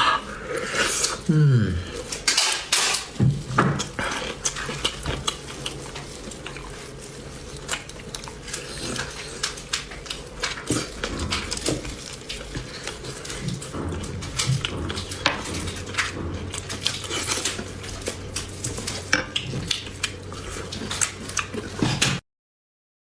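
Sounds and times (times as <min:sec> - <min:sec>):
chewing clicks: 0:03.8 - 0:22.2.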